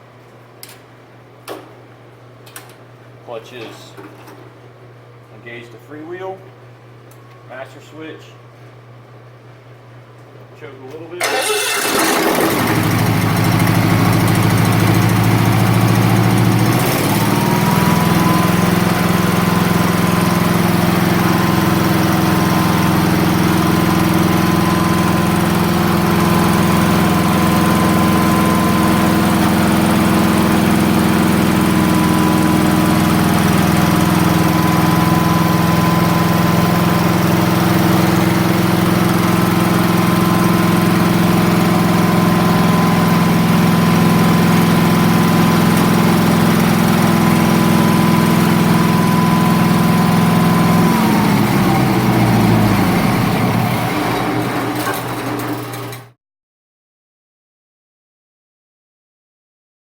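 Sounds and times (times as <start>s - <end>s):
small gasoline engine running: 11.2s - 55.9s.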